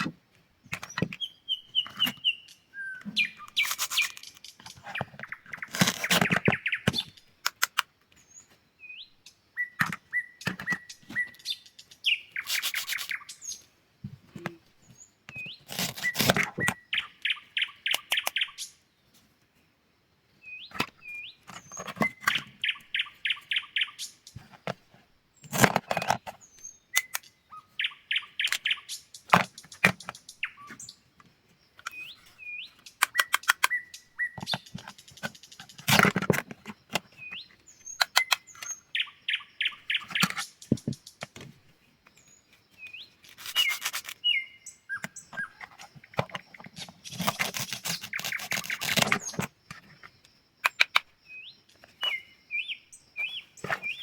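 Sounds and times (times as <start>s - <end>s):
small bird chirping: 0.0s - 19.2s, 20.3s - 54.0s
scratchy crunching noise: 5.6s - 6.5s, 12.4s - 13.2s, 15.6s - 16.7s, 46.7s - 49.5s.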